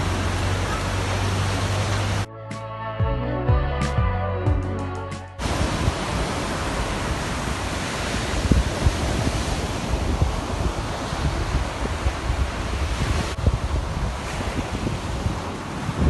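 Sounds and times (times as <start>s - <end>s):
sea surf: 0.0s - 2.3s, 5.4s - 16.0s
music: 2.3s - 5.4s
wind rumbling on microphone: 5.4s - 16.0s
wind rushing: 5.4s - 16.0s.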